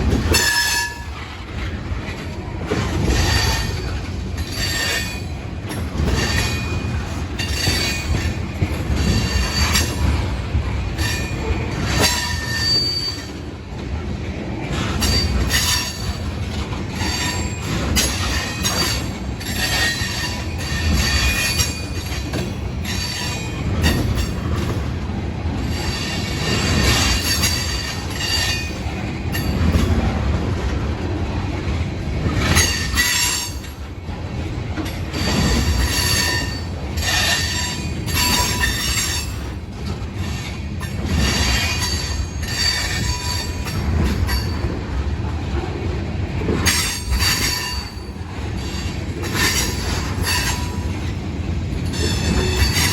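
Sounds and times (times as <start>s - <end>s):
freight train rumbling past: 0.0s - 52.9s
train wheels squealing: 0.3s - 1.2s, 3.0s - 10.3s, 11.0s - 13.5s, 14.7s - 16.3s, 17.0s - 24.8s, 25.6s - 29.9s, 32.4s - 33.9s, 35.1s - 39.6s, 40.2s - 44.7s, 46.6s - 51.1s, 51.8s - 52.9s.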